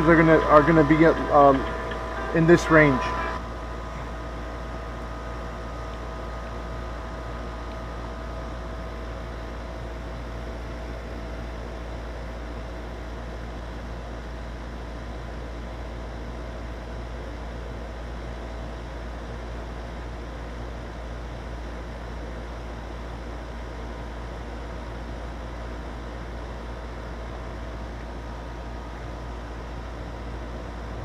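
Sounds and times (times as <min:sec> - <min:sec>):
air conditioner unit humming: 0:00.0 - 0:31.0
condenser fan whooshing: 0:00.0 - 0:31.0.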